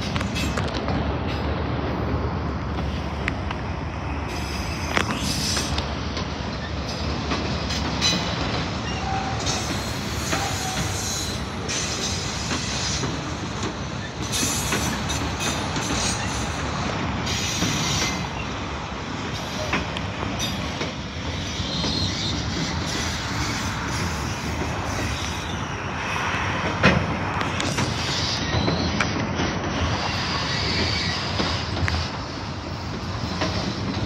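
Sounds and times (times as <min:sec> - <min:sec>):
train wheels rumbling on track: 0:00.0 - 0:34.0
high wheel squeal: 0:08.0 - 0:13.1, 0:20.4 - 0:25.7, 0:27.7 - 0:29.2, 0:29.8 - 0:32.2.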